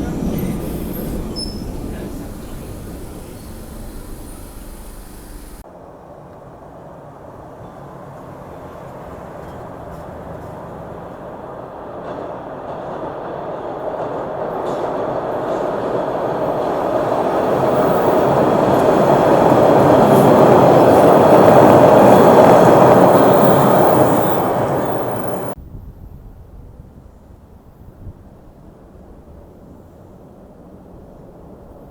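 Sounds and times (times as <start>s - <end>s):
train wheels on rails: 0.0s - 5.6s, 7.5s - 25.6s.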